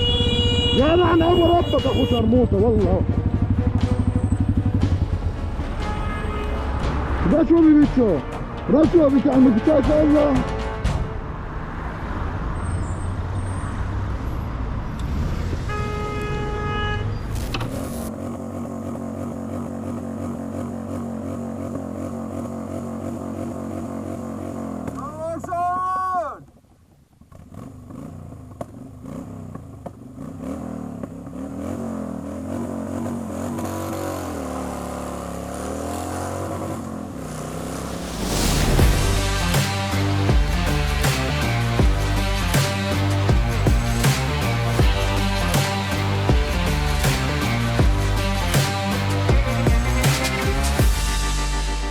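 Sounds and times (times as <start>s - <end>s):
vehicle horn: 0.0s - 7.2s, 15.6s - 17.4s
motorcycle engine revving: 0.0s - 15.7s, 17.2s - 25.2s, 27.1s - 51.9s
traffic and road noise: 0.0s - 51.9s.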